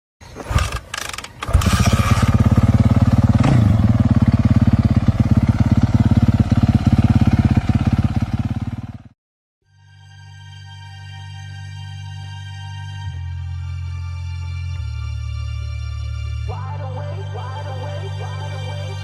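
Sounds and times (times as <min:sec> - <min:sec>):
motorbike engine idling: 0:00.4 - 0:09.2.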